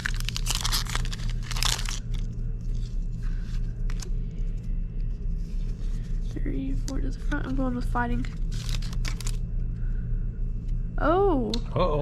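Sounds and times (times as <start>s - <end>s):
foil wrapper crinkling and tearing: 0.0s - 3.2s, 8.3s - 9.4s
low steady hum: 0.0s - 12.0s.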